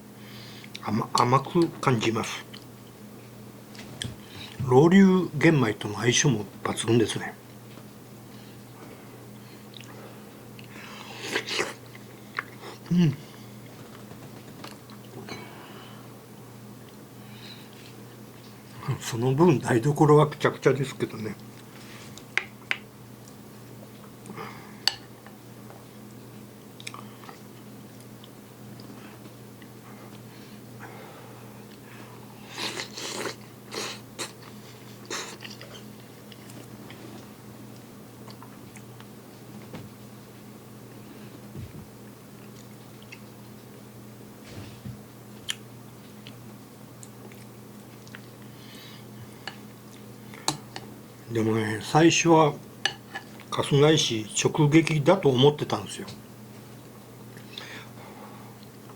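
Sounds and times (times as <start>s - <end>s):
steady low hum: 0.0s - 58.9s
quiet chewing: 9.6s - 15.4s, 21.4s - 30.3s, 32.5s - 39.5s, 42.4s - 43.7s, 45.4s - 48.6s, 49.2s - 50.9s
person chewing: 10.6s - 12.9s, 26.7s - 29.7s, 32.4s - 37.0s, 42.4s - 43.4s, 45.4s - 45.6s, 47.0s - 48.6s.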